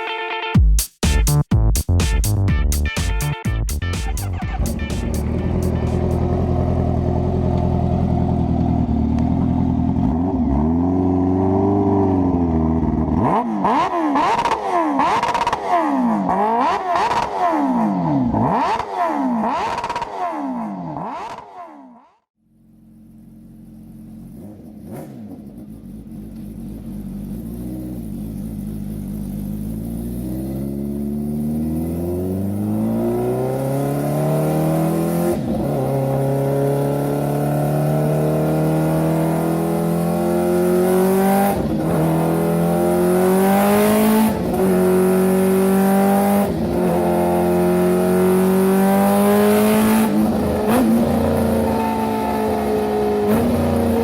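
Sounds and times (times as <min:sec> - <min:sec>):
engine accelerating through gears: 0:23.4 - 0:54.0.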